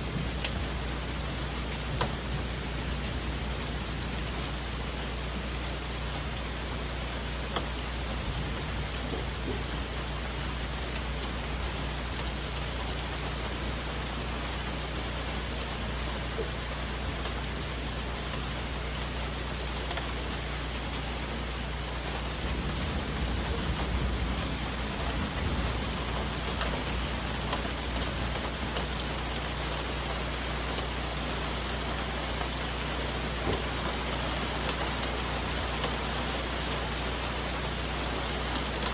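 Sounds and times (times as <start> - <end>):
rain falling on leaves: 0.0 - 38.9
distant thunder rumble: 22.3 - 28.8.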